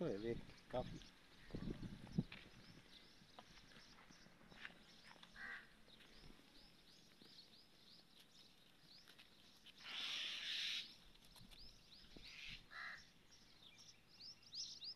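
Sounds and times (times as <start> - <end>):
small birds chirping: 0.0 - 14.9
short caw-like call: 5.4 - 5.7.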